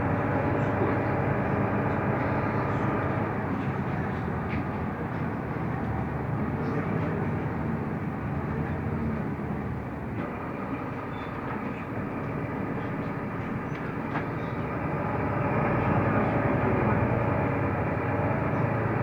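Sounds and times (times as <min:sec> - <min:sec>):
bus engine and road noise: 0:00.0 - 0:19.0.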